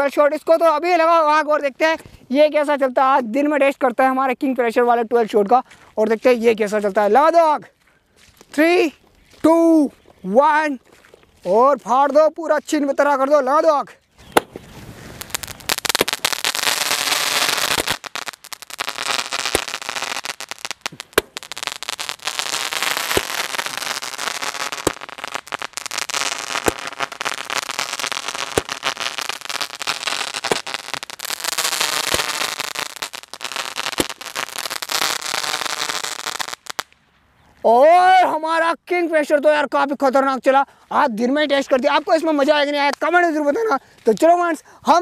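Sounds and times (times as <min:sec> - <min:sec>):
firework sharp pops: 0:14.2 - 0:37.0
firework shots hissing: 0:14.3 - 0:36.7.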